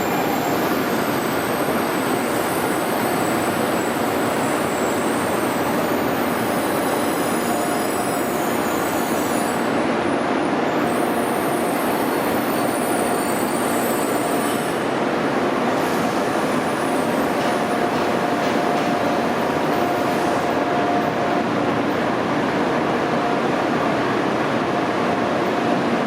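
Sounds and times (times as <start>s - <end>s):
high wheel squeal: 0.0s - 9.7s, 10.8s - 14.9s
freight train rolling: 0.0s - 26.0s.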